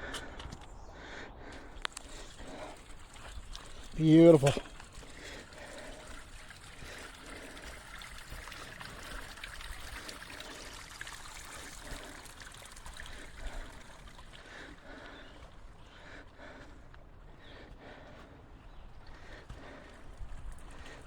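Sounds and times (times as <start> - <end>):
stream trickling over rocks: 1.7 - 15.9, 19.9 - 21.0.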